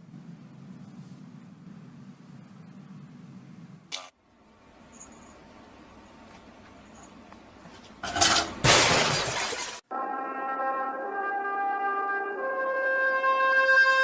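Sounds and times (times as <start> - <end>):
loud crash shattering: 8.6 - 9.8
music with held brass chords: 9.9 - 14.0.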